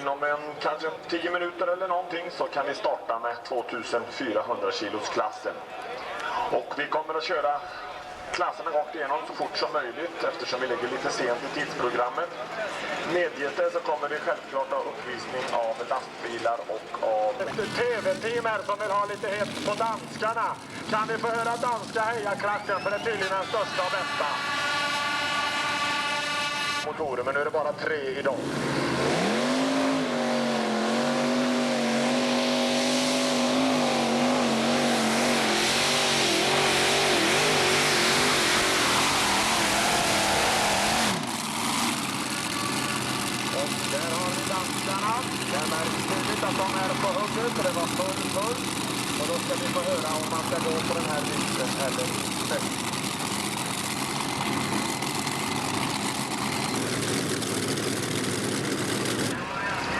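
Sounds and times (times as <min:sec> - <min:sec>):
tractor engine at high revs: 0:17.4 - 0:26.9, 0:28.3 - 0:59.9.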